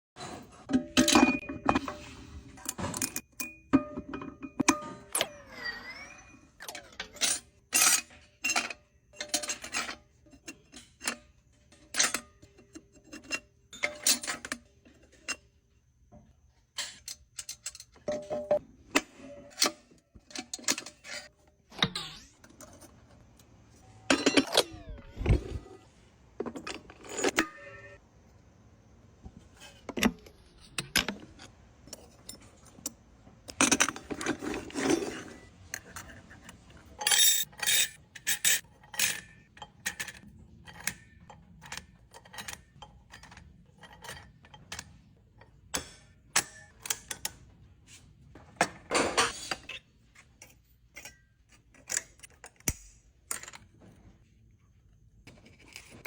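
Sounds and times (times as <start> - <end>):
metal parts clinking and knocking: 0.6 - 5.4, 6.6 - 15.6, 16.6 - 25.8, 26.4 - 28.0, 29.5 - 47.4
metal parts rattling: 23.9 - 28.0, 33.5 - 44.9.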